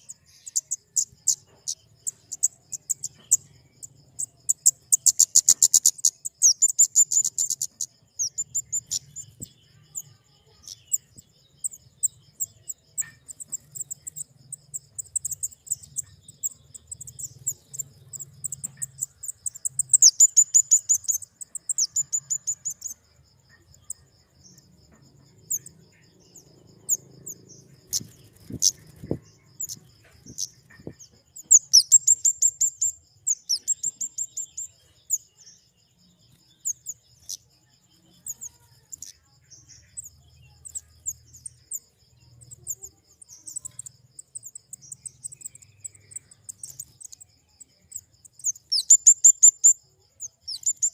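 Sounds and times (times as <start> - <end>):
bird ticking calls: 0.0 - 35.6, 38.1 - 50.9.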